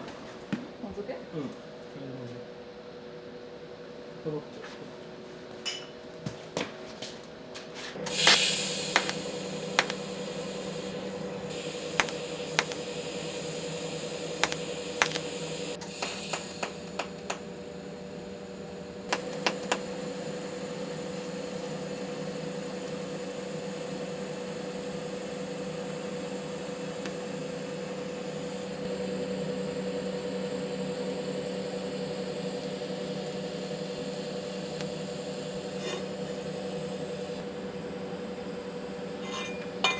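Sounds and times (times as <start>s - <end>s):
sharp metallic clicks and taps: 8.2s - 9.2s, 9.8s - 10.0s, 12.0s - 12.8s, 14.4s - 15.2s.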